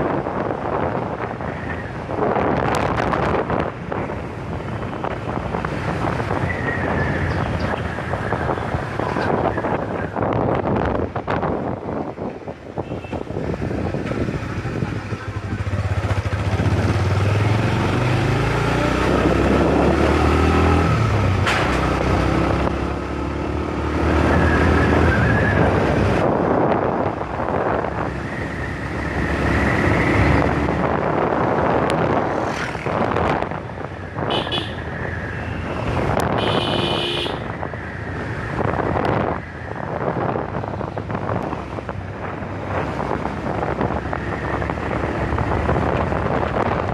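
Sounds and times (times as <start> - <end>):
road and wind noise: 0.0 - 46.9
vehicle horn toots: 34.3 - 34.8, 36.3 - 37.5.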